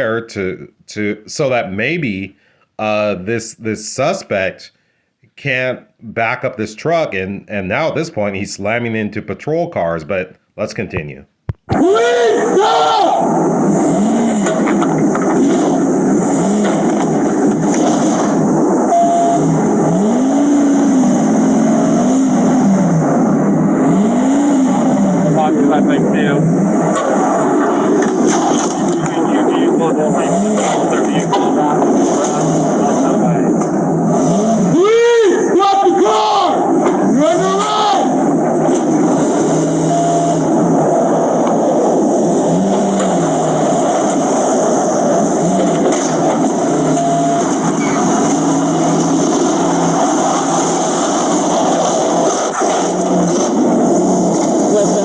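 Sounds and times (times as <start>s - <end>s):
vehicle engine revving: 13.5s - 34.8s, 38.2s - 55.0s
short beep: 18.9s - 19.6s, 39.8s - 40.4s, 46.9s - 48.0s
road and wind noise: 40.5s - 54.7s.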